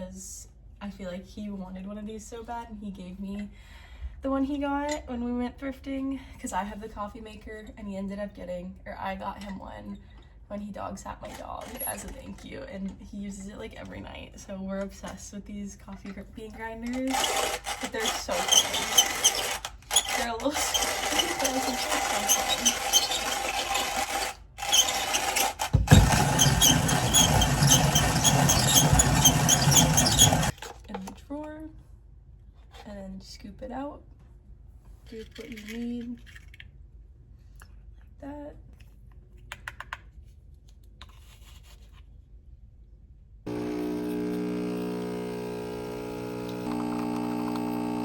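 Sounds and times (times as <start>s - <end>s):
manual coffee grinder grinding: 11.2s - 12.4s, 16.9s - 31.0s, 43.5s - 48.0s
grinder clicking: 16.9s - 30.6s, 43.5s - 48.0s
espresso maker pump buzzing: 17.1s - 30.6s, 43.5s - 48.0s.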